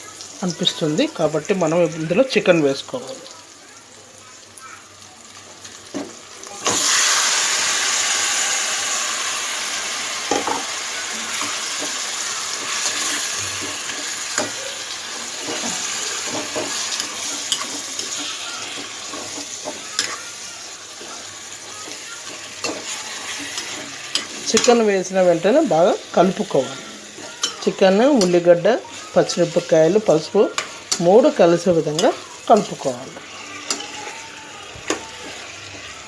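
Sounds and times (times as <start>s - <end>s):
chicken sizzling in hot oil: 0.0s - 36.0s
spoon stirring in a pan: 10.2s - 36.0s.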